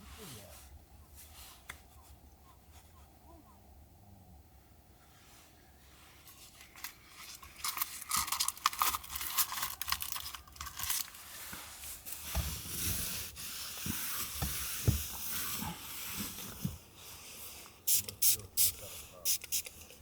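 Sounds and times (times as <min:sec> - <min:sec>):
rustling and crinkling: 0:05.1 - 0:17.8
soft thumps: 0:13.9 - 0:15.3.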